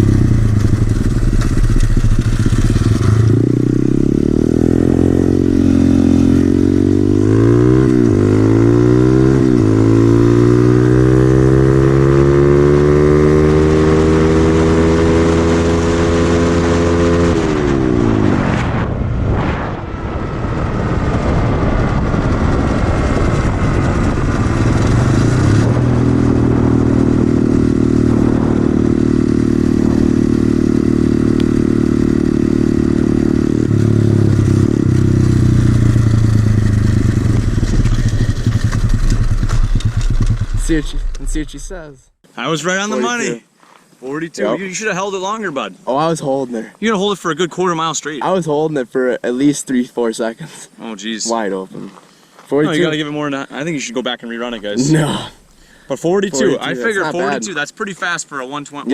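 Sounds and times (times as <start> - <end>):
motorcycle engine revving: 0.0 - 42.2
rushing noise: 17.3 - 31.8.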